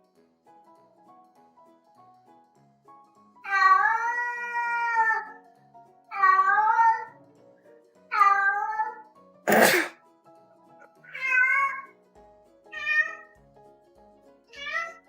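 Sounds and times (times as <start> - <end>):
soft background music: 0.0 - 15.0
cat meowing: 3.5 - 5.3, 6.1 - 7.2, 8.1 - 9.9, 11.0 - 11.9, 12.8 - 13.4, 14.6 - 15.0
short breathy burst: 9.5 - 9.9.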